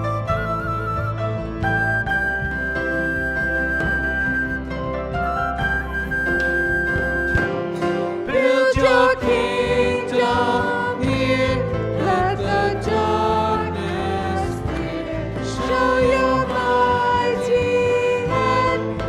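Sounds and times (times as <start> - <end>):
instrumental accompaniment: 0.0 - 19.0
choir singing a hymn: 7.8 - 19.0.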